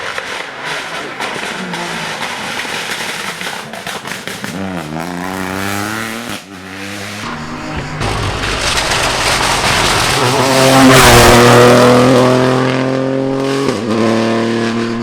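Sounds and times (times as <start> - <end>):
sharp cracks: 0.0 - 12.7
rally car engine running hard: 0.0 - 15.0.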